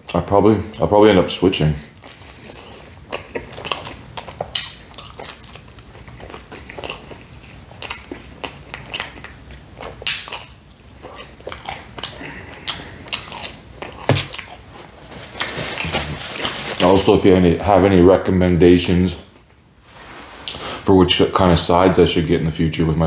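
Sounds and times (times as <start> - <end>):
chewing crunchy pizza crust: 0.0 - 17.1.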